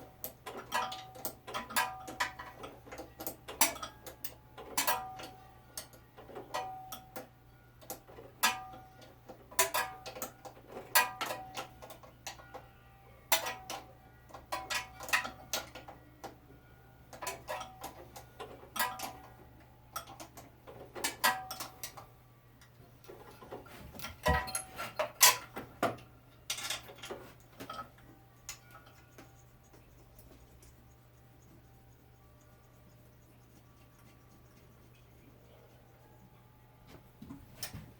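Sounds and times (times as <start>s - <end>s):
metal tools clinking on engine: 26.4s - 29.1s.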